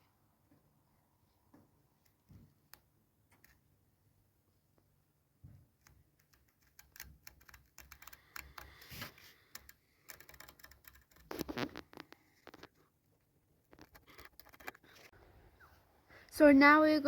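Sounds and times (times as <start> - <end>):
apron being cut clicks and scrapes: 11.1 - 12.7.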